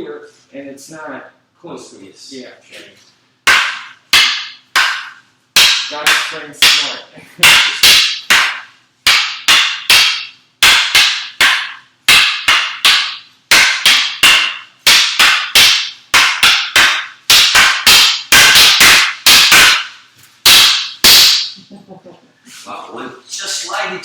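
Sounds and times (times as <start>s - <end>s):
wooden sticks clacking: 3.5s - 21.6s.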